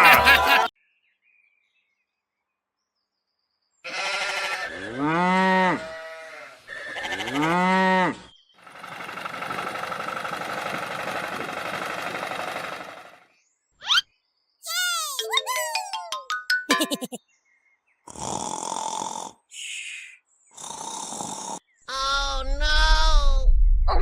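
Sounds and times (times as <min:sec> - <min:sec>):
cow mooing: 0:03.9 - 0:06.5
rapid mechanical rattle: 0:08.6 - 0:13.2.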